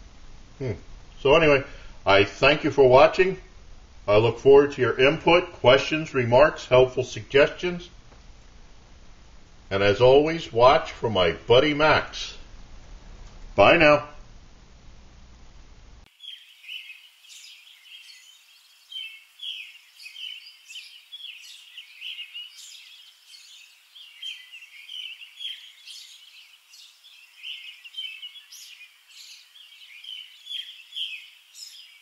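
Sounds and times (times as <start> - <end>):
small birds singing: 16.1 - 32.0.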